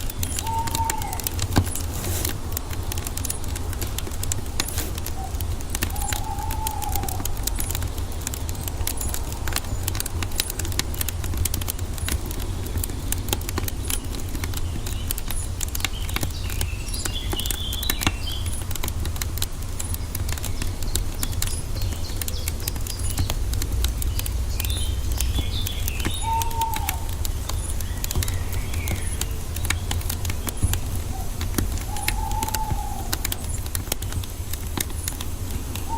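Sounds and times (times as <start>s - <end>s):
bird chirps: 0.0s - 18.8s, 19.8s - 35.9s
wood fire crackling and popping: 0.0s - 35.9s
bird whistle: 0.2s - 1.3s, 5.2s - 7.3s, 24.6s - 29.4s, 30.5s - 33.6s.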